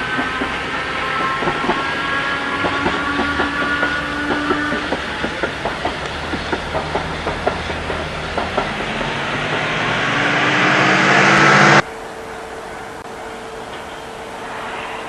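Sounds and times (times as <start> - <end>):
train wheels clicking over rail joints: 0.0 - 10.0
train rumble: 0.0 - 15.0
steady hum: 7.2 - 13.7.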